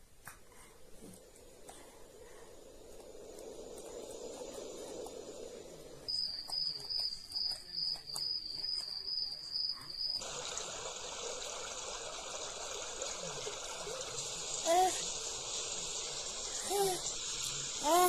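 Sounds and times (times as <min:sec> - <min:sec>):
steady rushing noise: 0:00.5 - 0:07.4
cricket chirping: 0:02.1 - 0:10.4.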